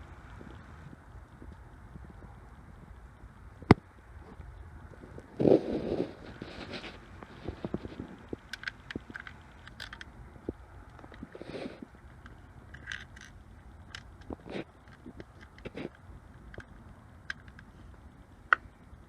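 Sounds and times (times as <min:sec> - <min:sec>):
rustling scrape: 0:05.0 - 0:09.4, 0:11.2 - 0:11.9, 0:14.3 - 0:16.0
handling clicks and taps: 0:06.7 - 0:11.3, 0:12.2 - 0:17.8.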